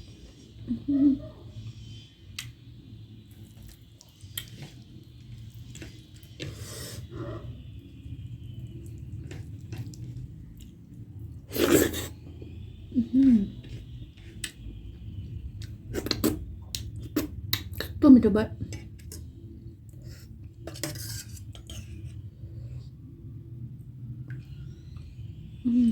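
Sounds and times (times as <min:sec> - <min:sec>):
person chewing food: 0:03.3 - 0:07.1, 0:08.6 - 0:10.9.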